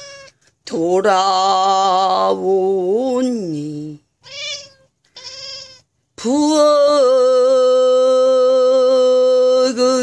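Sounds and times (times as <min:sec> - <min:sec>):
cat meowing: 0:00.0 - 0:00.4, 0:04.2 - 0:05.9.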